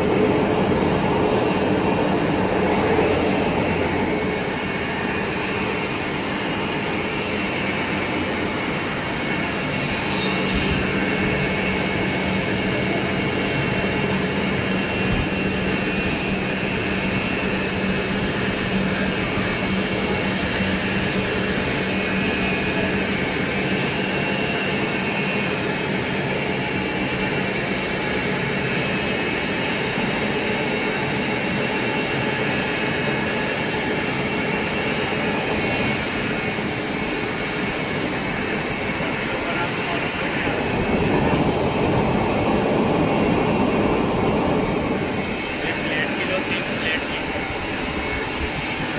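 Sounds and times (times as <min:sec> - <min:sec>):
steady low hum: 0:00.0 - 0:22.1, 0:35.8 - 0:48.7
lathe running: 0:40.2 - 0:48.1.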